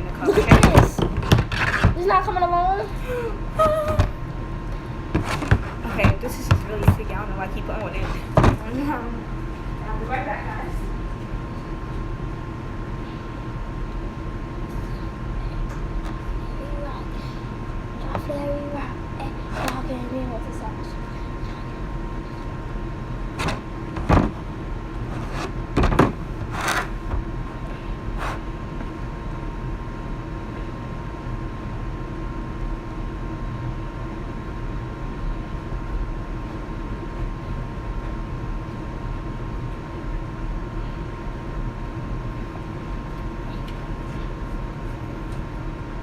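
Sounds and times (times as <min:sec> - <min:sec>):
room hum: 0:00.0 - 0:46.0.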